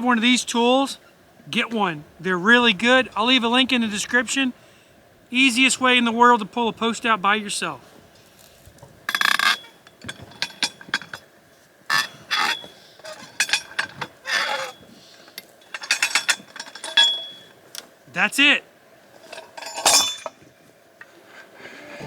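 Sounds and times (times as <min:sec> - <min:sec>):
metal clanks and rattles: 0:09.1 - 0:11.3, 0:11.9 - 0:17.8, 0:19.1 - 0:20.5.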